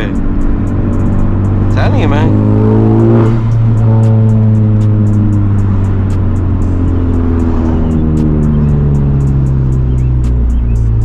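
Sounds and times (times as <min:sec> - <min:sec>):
car engine droning in cabin: 0:00.0 - 0:11.0.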